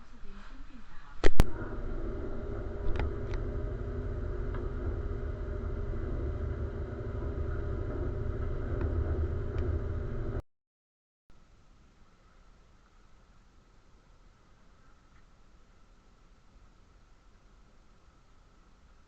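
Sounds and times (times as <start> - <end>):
engine rumble with hum: 1.3 - 10.4.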